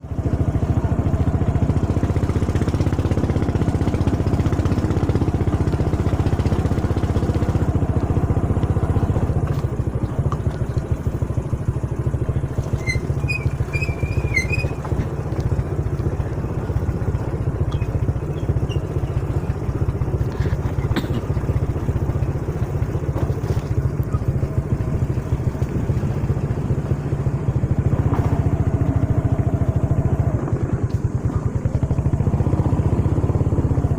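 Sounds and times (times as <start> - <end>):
small motorcycle engine running: 0.0 - 33.9.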